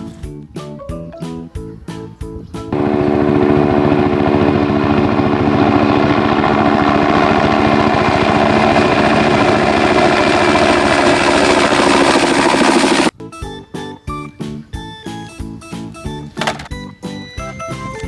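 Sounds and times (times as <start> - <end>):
vehicle engine running: 2.7 - 13.1.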